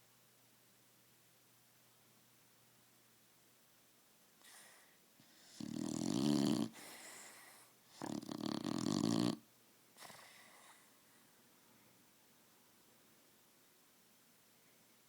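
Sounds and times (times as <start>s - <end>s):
dog breathing softly: 4.4s - 9.0s, 10.0s - 11.3s
dog snoring: 4.4s - 10.9s.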